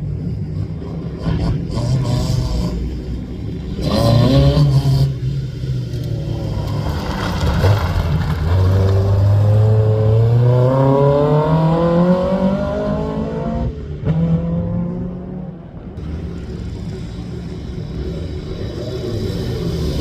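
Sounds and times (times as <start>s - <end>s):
rally car engine accelerating: 0.2s - 20.0s.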